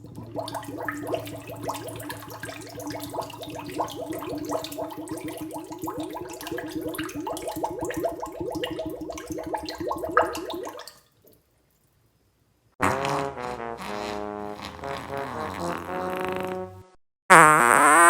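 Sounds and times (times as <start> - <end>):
water gurgling with air bubbles: 0.0 - 10.8
loud pitched blast: 12.8 - 16.4.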